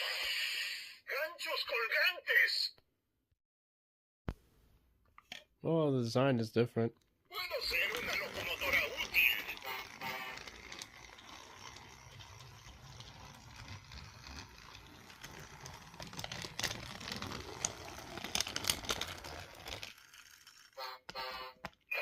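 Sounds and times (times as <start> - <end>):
toy engine motor humming: 7.3 - 22.0.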